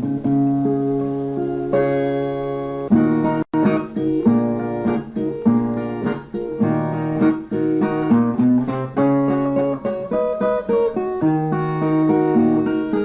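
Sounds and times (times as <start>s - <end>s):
plucked viola notes and chords: 0.0s - 13.0s.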